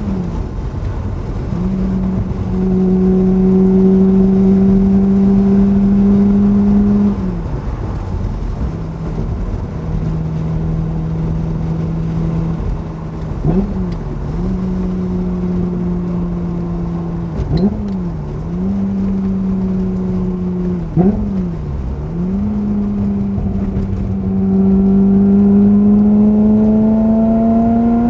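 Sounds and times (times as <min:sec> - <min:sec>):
car engine at steady revs: 0:00.0 - 0:28.0
gear changes: 0:00.0 - 0:28.0.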